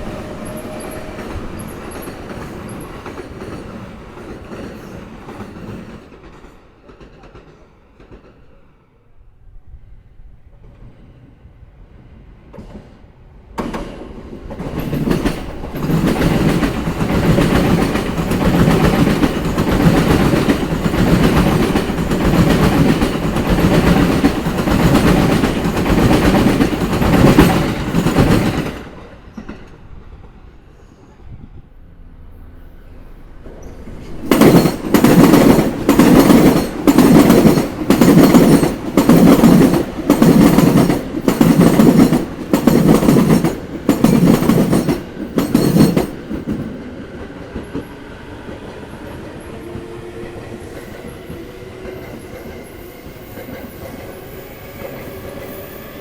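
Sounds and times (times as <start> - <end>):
train wheels clattering over rail joints: 13.6 - 29.8, 33.6 - 47.9.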